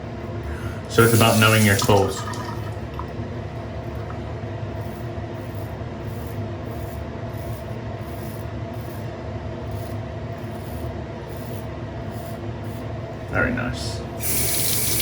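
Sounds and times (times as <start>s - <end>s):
razor scraping stubble: 4.0s - 13.1s, 14.2s - 15.0s.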